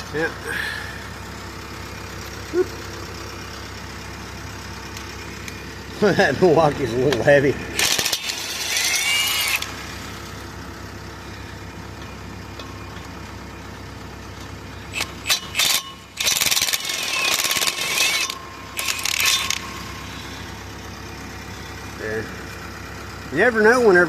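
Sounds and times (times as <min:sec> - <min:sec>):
steady low hum: 0:00.0 - 0:16.2, 0:16.8 - 0:23.4
impact wrench running: 0:06.0 - 0:10.4, 0:14.9 - 0:20.9.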